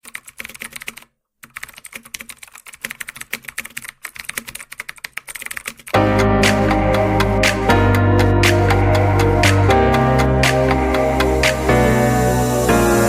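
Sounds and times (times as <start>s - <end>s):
keyboard typing clicks: 0.0s - 9.7s.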